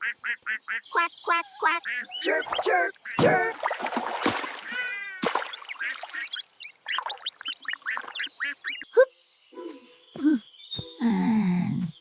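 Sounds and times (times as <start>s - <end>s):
cartoon ducks quacking: 0.0s - 3.6s, 4.6s - 9.0s.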